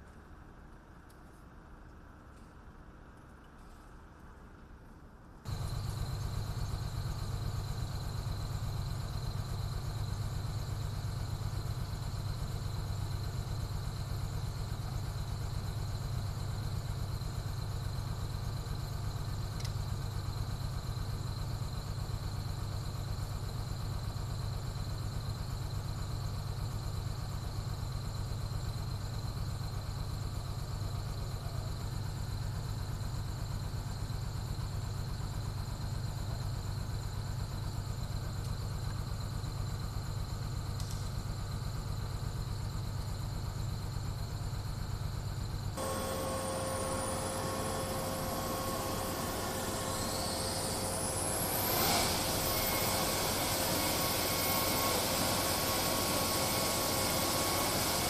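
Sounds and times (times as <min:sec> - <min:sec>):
jet engines running: 0:05.5 - 0:25.4, 0:45.6 - 0:58.0.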